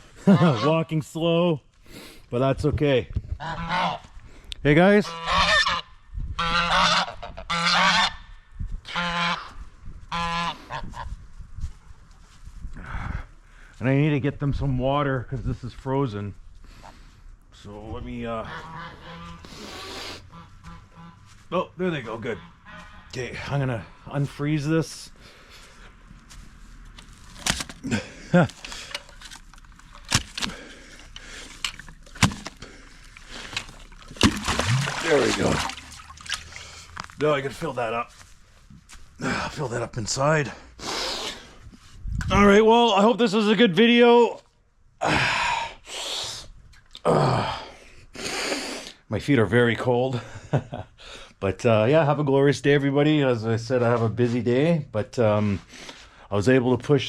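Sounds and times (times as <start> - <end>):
geese honking: 0.2 - 0.9, 3.4 - 4.2, 4.9 - 8.3, 8.9 - 11.1, 18.3 - 24.2
ice scraping: 27.0 - 37.8
sharp strikes on ice: 30.0 - 30.5.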